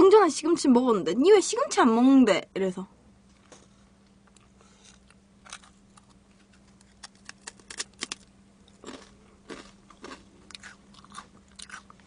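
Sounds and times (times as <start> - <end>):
faint steady hum: 0.0 - 12.0
crunchy chewing: 4.3 - 12.0.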